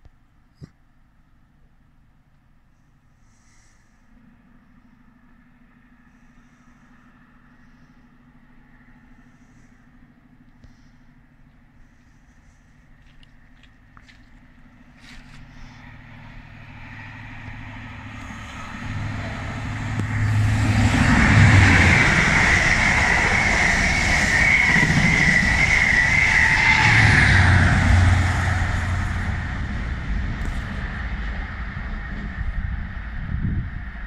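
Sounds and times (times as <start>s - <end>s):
low engine hum: 0.1s - 34.0s
train wheels rumbling on rail: 5.7s - 34.0s
high whine: 14.0s - 34.0s.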